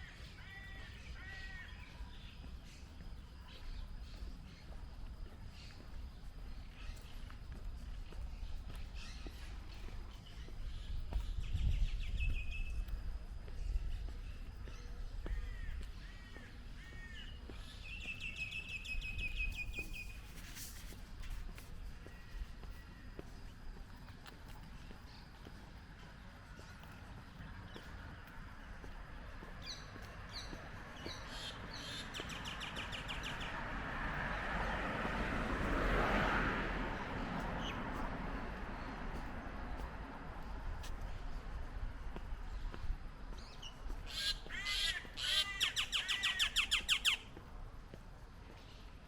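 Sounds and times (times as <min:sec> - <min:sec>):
small birds chirping: 0:00.2 - 0:20.3, 0:22.0 - 0:33.6, 0:42.2 - 0:47.5
passing vehicle: 0:24.2 - 0:42.5
bird singing with trill: 0:43.4 - 0:47.2.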